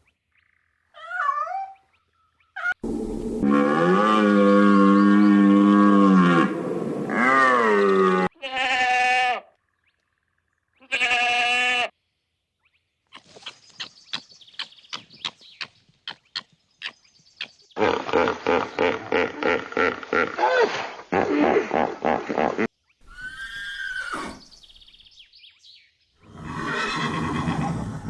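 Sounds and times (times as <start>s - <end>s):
sheep or goat bleating: 7.1s - 9.5s, 10.8s - 11.9s.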